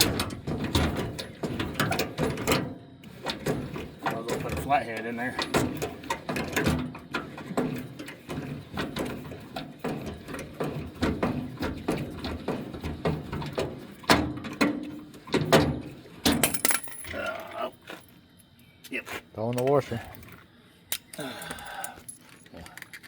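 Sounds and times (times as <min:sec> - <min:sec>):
hand tools clicking and clinking: 0:16.3 - 0:17.6, 0:19.5 - 0:23.0.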